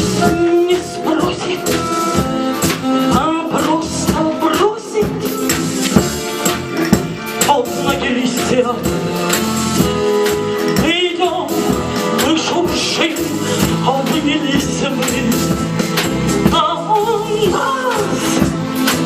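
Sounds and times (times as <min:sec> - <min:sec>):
live band playing: 0:00.0 - 0:19.0
person singing with vibrato: 0:00.2 - 0:02.2, 0:16.4 - 0:18.5.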